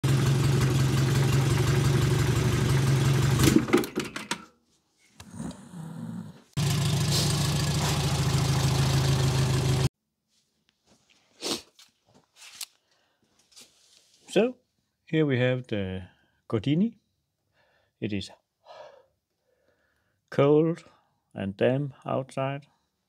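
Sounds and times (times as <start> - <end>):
car engine idling: 0.0 - 3.5, 6.6 - 9.9.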